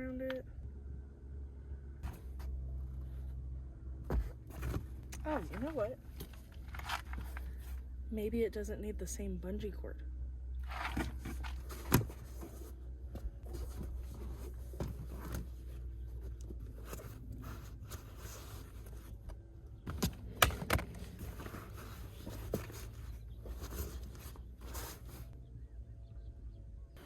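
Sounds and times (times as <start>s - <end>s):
steady low hum: 0.0s - 27.0s
objects scraping and knocking: 10.6s - 12.8s.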